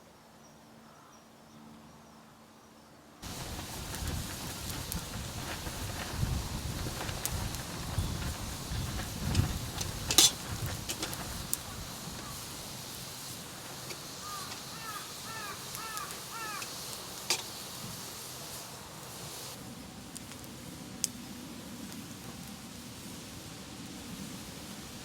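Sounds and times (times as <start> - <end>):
sharp snaps and crackles: 3.2 - 17.6, 20.1 - 21.2.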